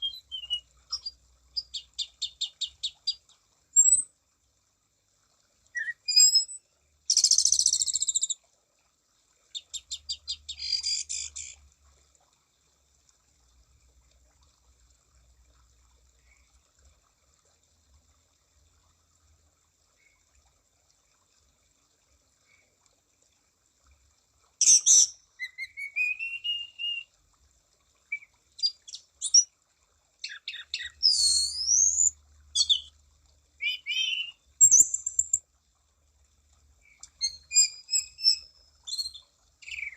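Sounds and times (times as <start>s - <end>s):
thrush singing trills and whistles: 0.0s - 3.1s, 5.8s - 8.4s, 24.6s - 27.1s, 30.2s - 32.9s, 33.6s - 35.4s, 36.9s - 39.9s.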